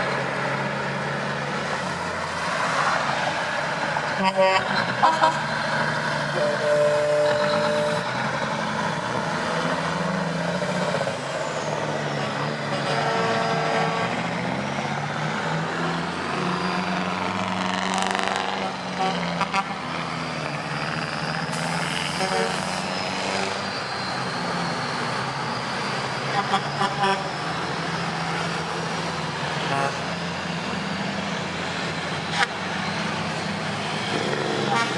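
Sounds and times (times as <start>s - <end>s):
diesel truck engines droning: 0.0s - 34.9s
truck horn blasts: 4.2s - 5.5s, 6.3s - 8.1s, 12.1s - 14.3s, 18.5s - 19.8s, 21.5s - 23.6s, 26.3s - 27.3s, 29.6s - 30.2s, 34.6s - 34.9s.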